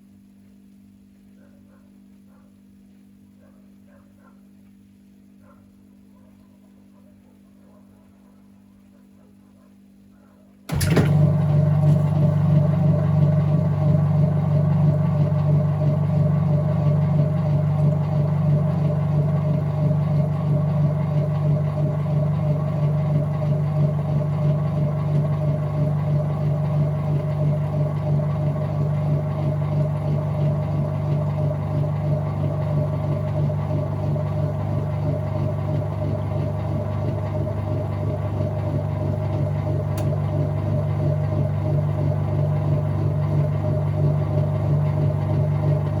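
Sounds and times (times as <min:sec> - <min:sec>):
washing machine motor hum: 0:10.6 - 0:46.0.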